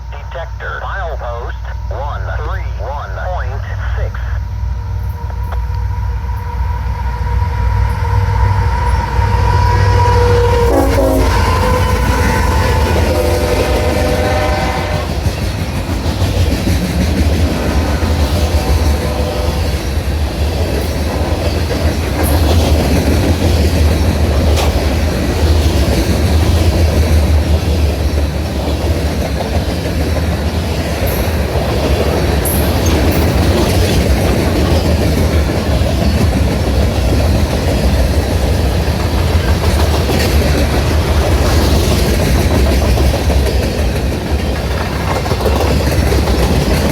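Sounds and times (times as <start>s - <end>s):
freight train rumbling: 0.0s - 46.9s
train horn: 7.1s - 15.3s, 18.5s - 19.7s.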